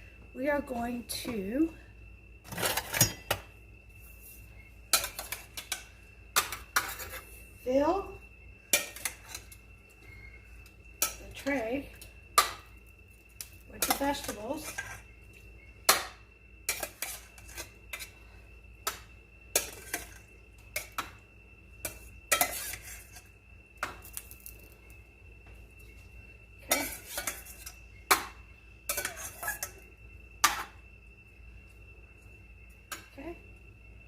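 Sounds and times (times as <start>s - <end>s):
utensil clinking against cookware: 28.9s - 29.8s.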